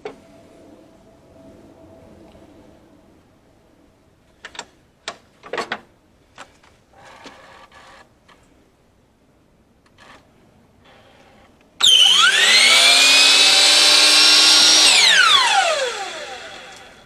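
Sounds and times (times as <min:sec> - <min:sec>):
mechanical whirring: 0:11.8 - 0:17.0.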